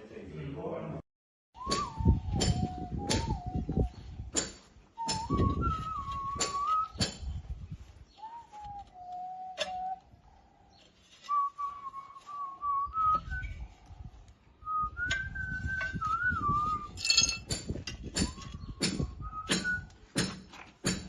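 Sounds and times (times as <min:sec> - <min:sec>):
person whistling a tune: 0:01.6 - 0:04.0, 0:05.0 - 0:07.2, 0:08.2 - 0:10.0, 0:11.3 - 0:13.6, 0:14.6 - 0:17.1, 0:18.2 - 0:20.0
sharp clinks: 0:17.0 - 0:17.7.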